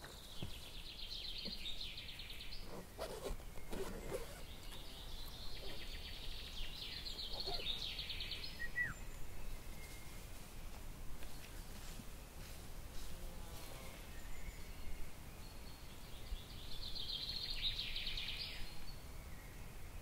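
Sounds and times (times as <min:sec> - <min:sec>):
songbird trilling: 0:01.1 - 0:09.1
short falling bird whistle: 0:08.6 - 0:09.0.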